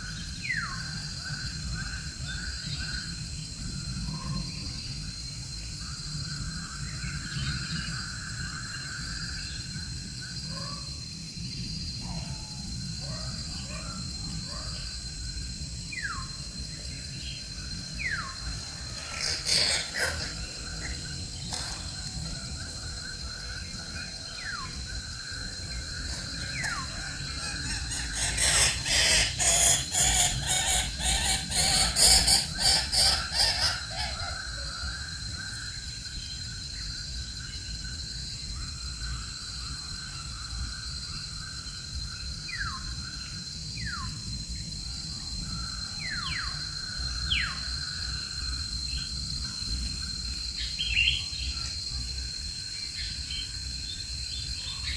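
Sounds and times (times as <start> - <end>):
high insect drone: 0.0 - 54.9
rapid rasping bird calls: 18.7 - 22.2, 26.1 - 34.4.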